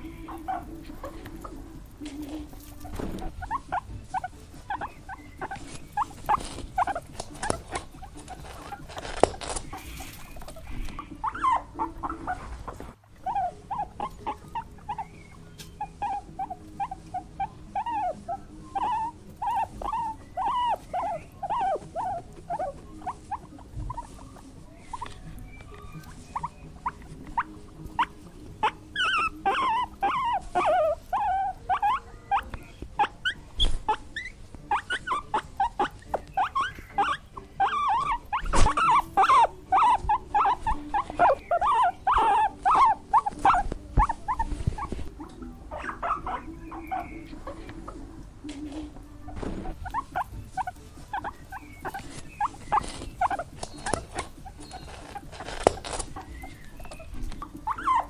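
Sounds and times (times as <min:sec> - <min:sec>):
small animals squeaking: 0:00.0 - 0:58.0.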